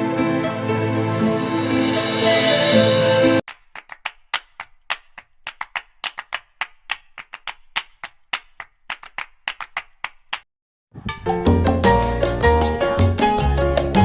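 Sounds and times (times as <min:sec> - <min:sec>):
latin dance music: 0:11.1 - 0:14.0.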